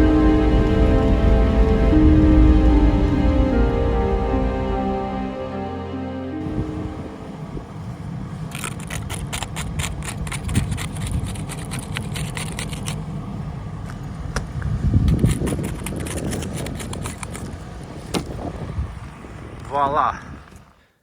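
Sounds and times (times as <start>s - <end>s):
steady low rumble: 0.0s - 20.7s
rapid crisp clicks: 8.5s - 13.0s, 13.8s - 17.5s.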